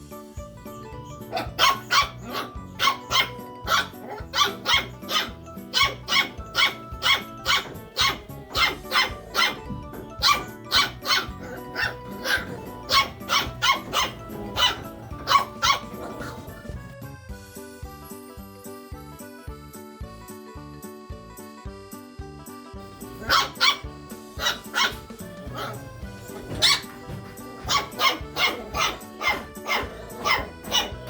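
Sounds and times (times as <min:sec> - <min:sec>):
background music: 0:00.0 - 0:31.0
puppy yapping: 0:00.7 - 0:16.9, 0:22.9 - 0:31.0.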